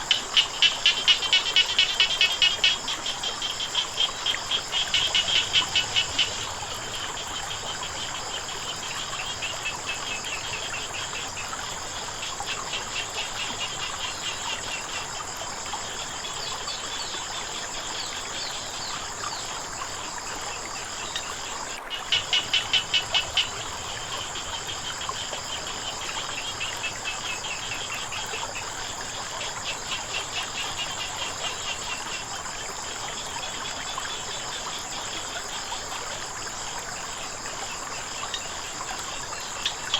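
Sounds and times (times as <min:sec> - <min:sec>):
pulsed frog croaks: 0:00.0 - 0:14.9, 0:21.0 - 0:32.3
insects trilling: 0:00.0 - 0:39.9
water trickling: 0:00.0 - 0:39.9.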